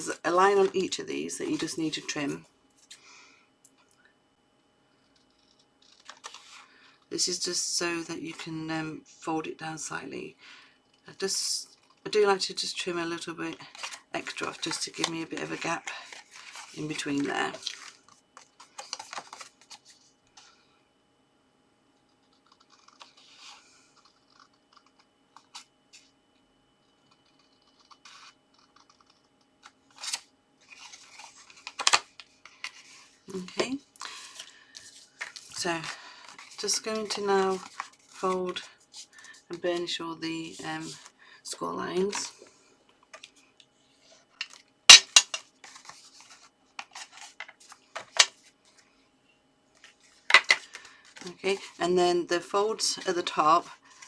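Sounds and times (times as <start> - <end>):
card snipping and rustling: 13.7 - 20.4, 27.1 - 39.3.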